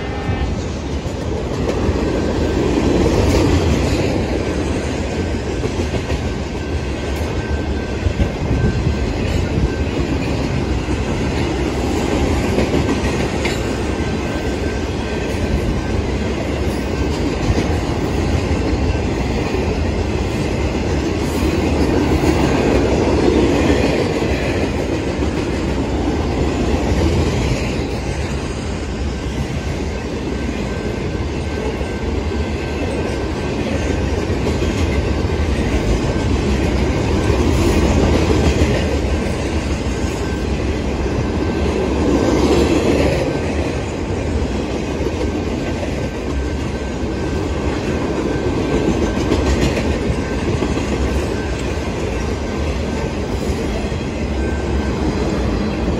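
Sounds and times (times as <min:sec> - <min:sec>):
train wheels rumbling on rails: 0:00.0 - 0:55.9
clickety-clack over rail joints: 0:00.2 - 0:55.9.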